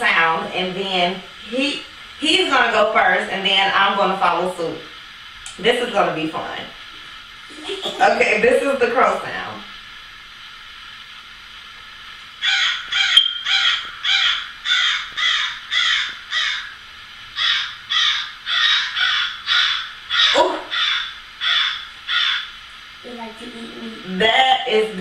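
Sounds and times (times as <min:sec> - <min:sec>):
crow cawing: 0:12.4 - 0:16.8, 0:17.4 - 0:22.6.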